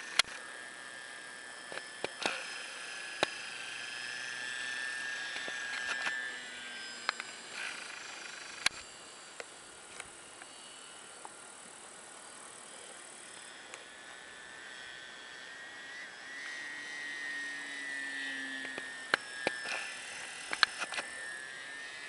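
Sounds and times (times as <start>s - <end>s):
model plane motor whine: 0.0s - 22.0s
sharp clicks: 7.0s - 8.8s, 20.4s - 21.1s.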